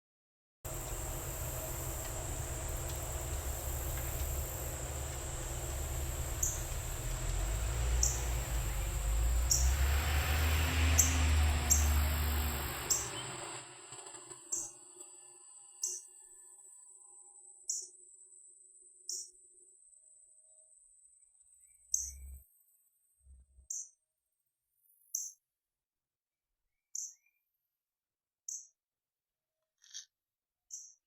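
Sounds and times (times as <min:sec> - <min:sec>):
low rumble: 0:00.7 - 0:13.4
high insect trill: 0:00.7 - 0:13.5.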